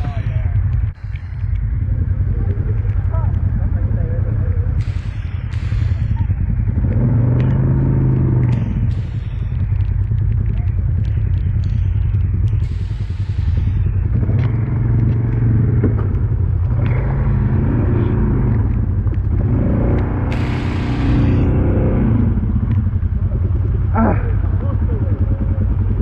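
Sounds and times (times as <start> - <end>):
atv engine running under load: 0.0 - 26.0
bursts of hiss: 4.8 - 6.2, 20.3 - 21.4.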